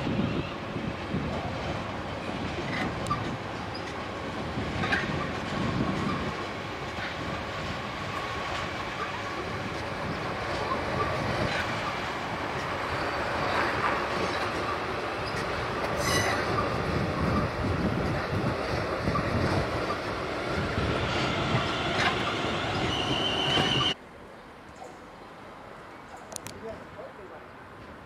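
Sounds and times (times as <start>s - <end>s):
train wheels rumbling and clattering: 0.0s - 24.0s
high wheel squeals: 12.9s - 17.6s, 21.1s - 24.0s.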